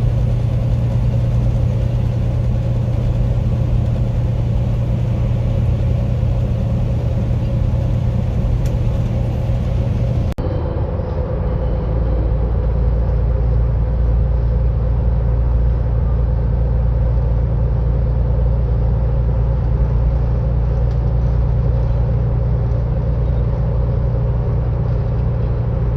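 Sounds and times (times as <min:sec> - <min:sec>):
freight train rumbling: 0:00.0 - 0:25.9.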